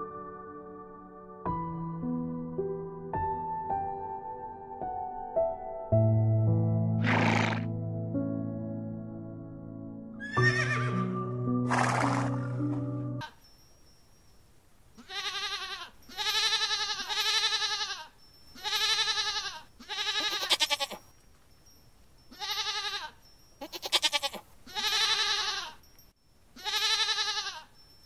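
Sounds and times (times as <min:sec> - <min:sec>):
goat bleating: 0:15.0 - 0:21.0, 0:22.3 - 0:25.8, 0:26.6 - 0:27.7.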